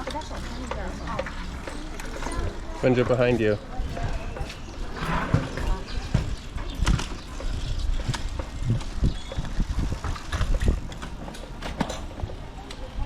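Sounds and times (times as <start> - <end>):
bicycle rattling: 0.0 - 13.0
low rumble: 0.4 - 10.8.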